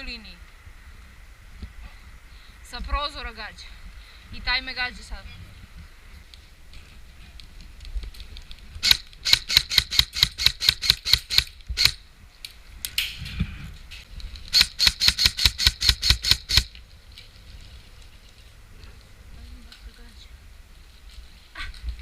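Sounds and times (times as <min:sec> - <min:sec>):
airsoft gun rapid shots: 0:08.8 - 0:12.0, 0:14.5 - 0:16.7.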